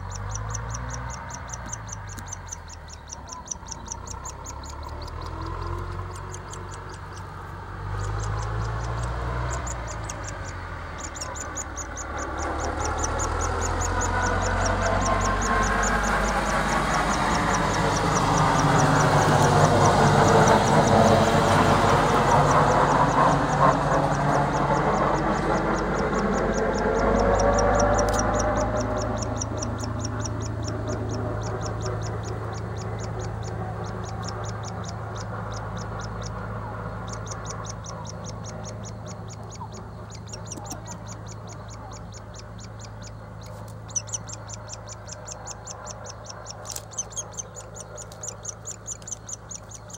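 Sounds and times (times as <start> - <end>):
loud engine noise: 0.0 - 49.9
nestling chirps: 0.0 - 49.9
sharp taps: 37.7 - 42.2.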